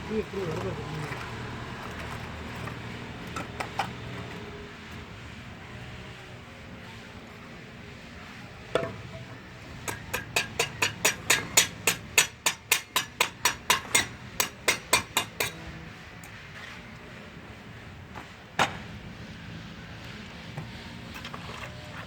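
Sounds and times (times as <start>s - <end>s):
hammer strikes: 8.8s - 15.6s.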